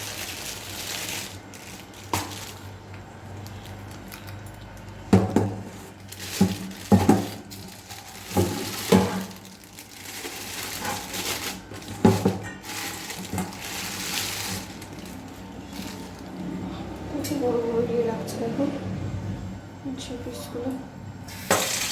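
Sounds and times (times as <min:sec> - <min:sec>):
rustling handling noise: 0:00.0 - 0:17.0.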